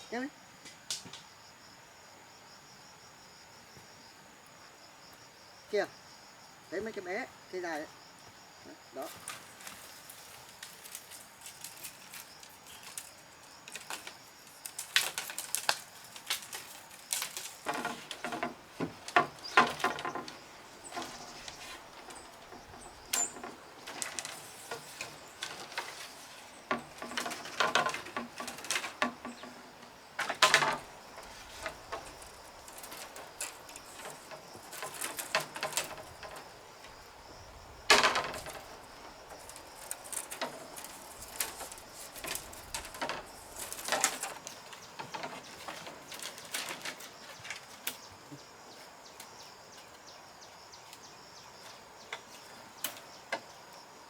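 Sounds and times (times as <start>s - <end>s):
bamboo poles knocking: 13.7s - 37.0s, 37.8s - 47.0s.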